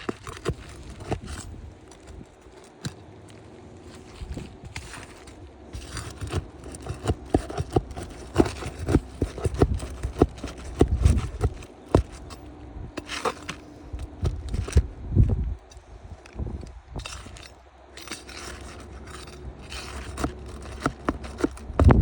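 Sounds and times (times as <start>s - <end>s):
roof shingles knocking and scraping: 0.0s - 12.4s, 18.4s - 22.0s
low rumble: 13.8s - 17.5s.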